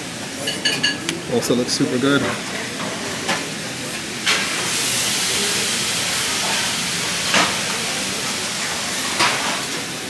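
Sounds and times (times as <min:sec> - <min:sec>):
tableware clinks: 0:00.4 - 0:01.0.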